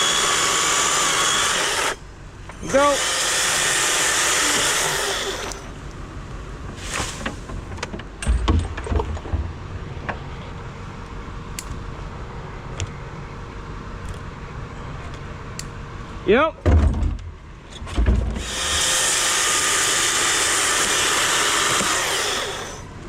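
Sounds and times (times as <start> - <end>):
chainsaw cutting hardwood: 0.0 - 2.0, 2.6 - 5.7, 18.4 - 22.9.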